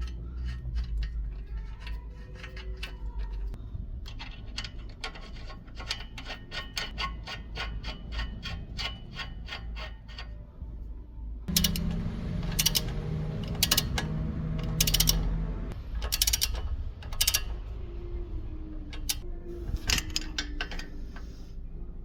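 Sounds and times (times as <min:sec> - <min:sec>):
ratchet wrench clicking: 0:00.0 - 0:10.3, 0:11.5 - 0:15.4, 0:16.0 - 0:17.6, 0:18.9 - 0:21.4
low hum: 0:10.4 - 0:22.0
harsh mechanical strokes: 0:11.5 - 0:17.7.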